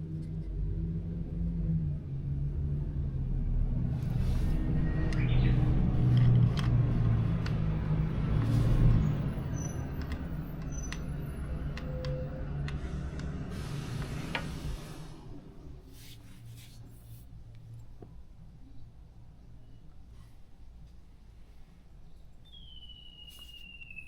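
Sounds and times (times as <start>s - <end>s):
vehicle engine hum: 0.0s - 18.0s.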